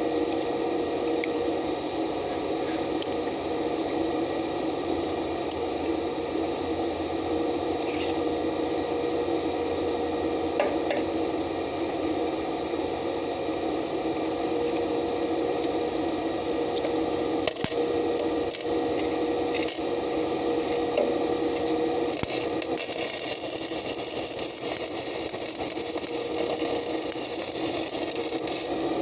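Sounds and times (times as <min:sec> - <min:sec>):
welding arc crackling hiss: 0:16.7 - 0:20.1, 0:21.5 - 0:29.0.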